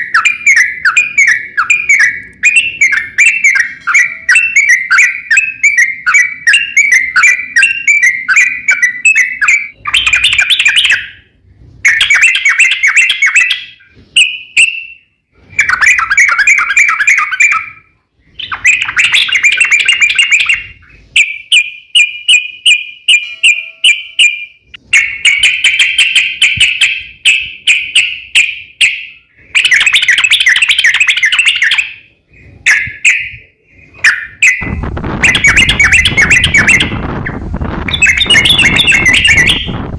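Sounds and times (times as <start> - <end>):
songbird singing chattering phrases: 15.6 - 37.2, 37.8 - 39.8.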